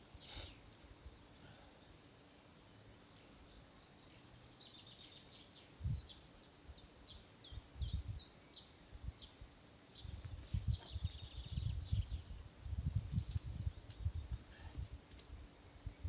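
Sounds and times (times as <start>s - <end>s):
songbird chirping: 0.0s - 14.8s, 15.5s - 16.0s.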